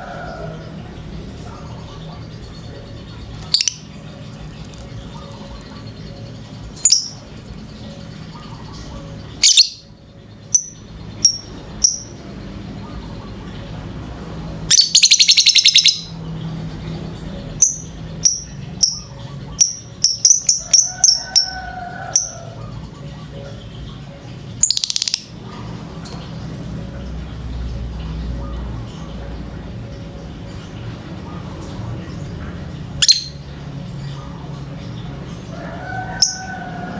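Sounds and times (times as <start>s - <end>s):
bird rattling trills: 3.0s - 12.6s, 14.7s - 16.2s, 17.4s - 27.5s, 31.3s - 36.9s
bird high-pitched chirps: 3.3s - 12.3s, 14.7s - 16.2s, 17.6s - 22.8s, 24.6s - 25.4s, 33.0s - 33.5s.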